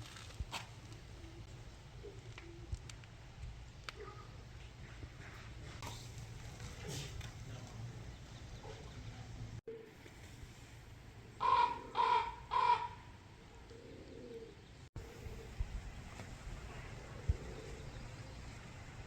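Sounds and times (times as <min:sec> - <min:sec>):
crow cawing harshly: 0:11.4 - 0:13.0.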